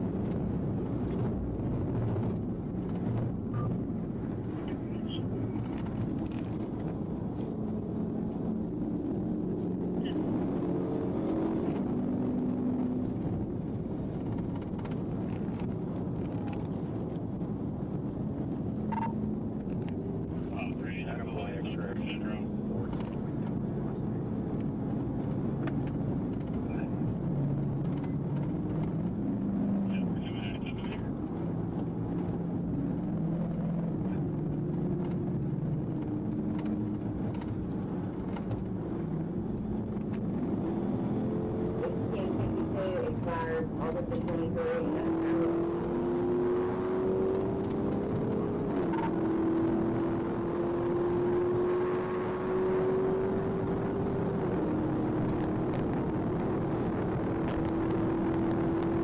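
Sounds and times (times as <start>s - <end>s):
vehicle engine rumble: 0.0s - 59.0s.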